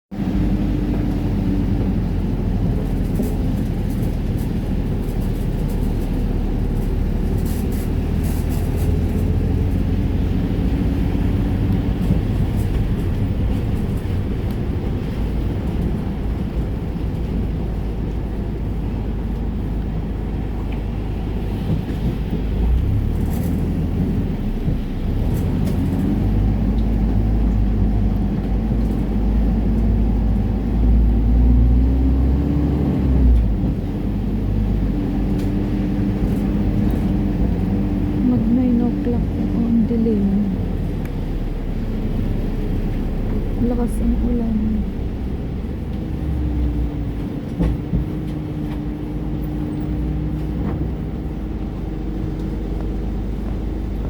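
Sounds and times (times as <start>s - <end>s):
low traffic rumble: 0.1s - 54.0s
faint engine tones: 22.0s - 54.0s.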